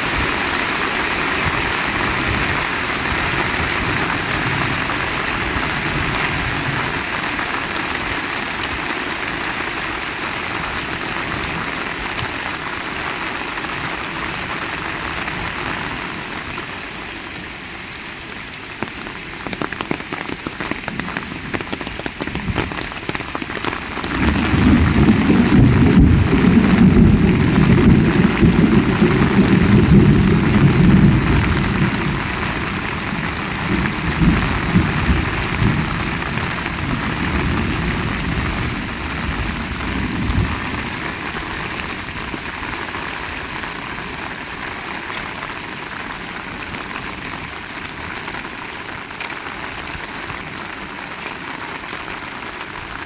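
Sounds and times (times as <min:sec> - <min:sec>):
heavy rain: 0:00.0 - 0:53.0
low rumble of thunder: 0:24.0 - 0:42.2.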